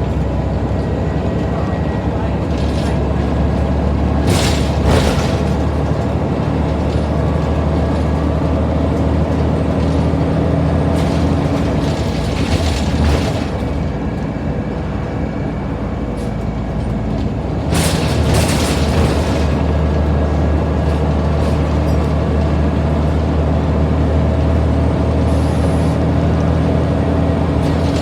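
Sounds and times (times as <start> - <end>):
bus diesel engine droning: 0.0 - 28.0
rattles and knocks: 2.6 - 14.9, 16.1 - 23.4, 27.5 - 28.0.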